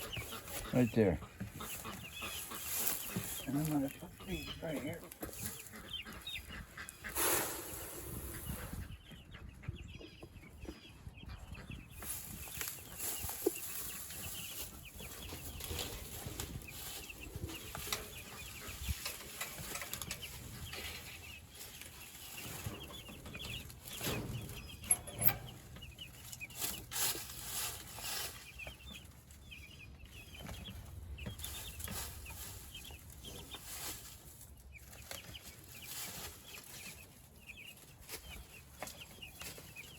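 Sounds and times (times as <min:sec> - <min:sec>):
chickens clucking and peeping: 0:00.0 - 0:39.9.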